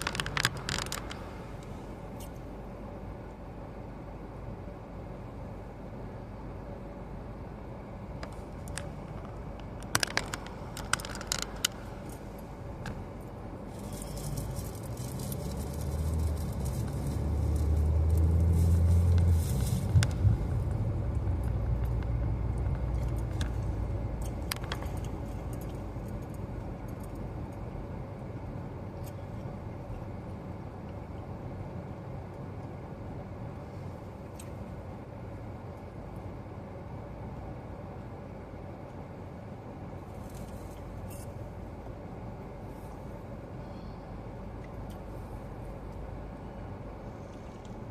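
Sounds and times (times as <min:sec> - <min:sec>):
sharp clicks and rattles: 0:00.0 - 0:01.3, 0:08.2 - 0:13.0, 0:13.8 - 0:27.2
air conditioning blowing: 0:00.0 - 0:47.9
car road and engine noise: 0:00.0 - 0:47.9
deep rumble with hiss: 0:00.0 - 0:47.9.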